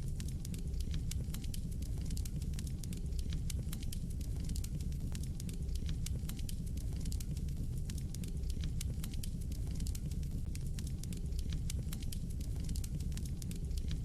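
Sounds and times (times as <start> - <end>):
fire crackling and popping: 0.0 - 14.0
flames rumbling: 0.0 - 14.0.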